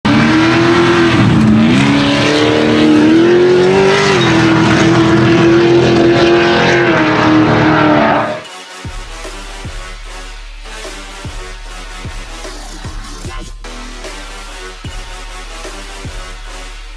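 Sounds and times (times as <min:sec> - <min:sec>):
race car engine high revs: 0:00.0 - 0:08.5.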